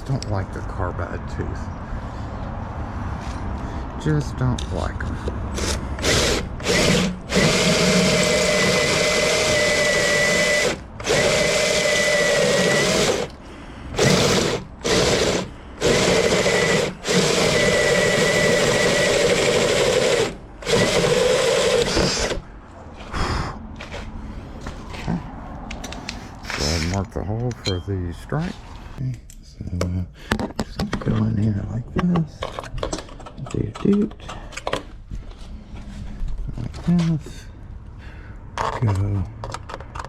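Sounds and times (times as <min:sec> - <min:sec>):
power drill cutting steel: 0:05.6 - 0:22.4.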